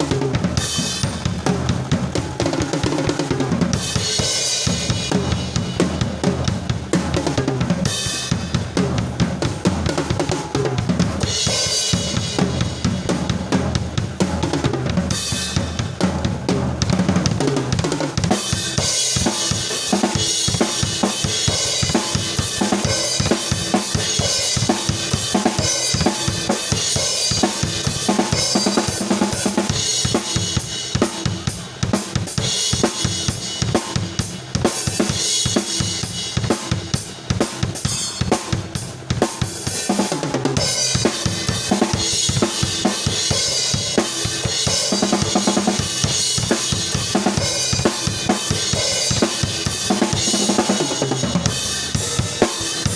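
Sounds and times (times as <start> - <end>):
cymbals: 40.6 - 52.9.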